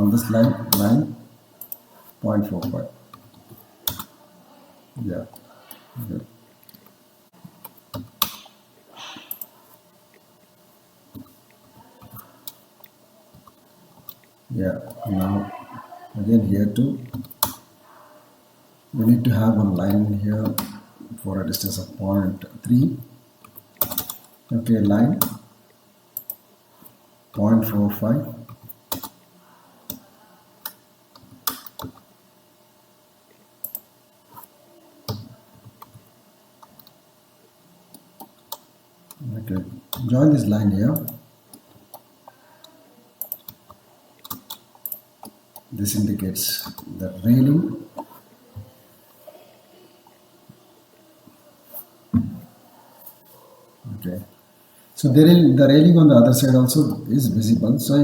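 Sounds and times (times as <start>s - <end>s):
computer mouse and keyboard clicks: 43.2s - 45.7s.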